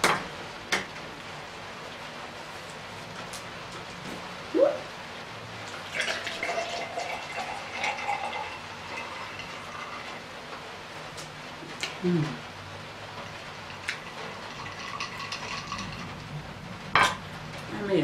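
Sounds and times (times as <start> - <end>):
rain hissing: 0.3 - 18.0
person humming: 12.0 - 12.4.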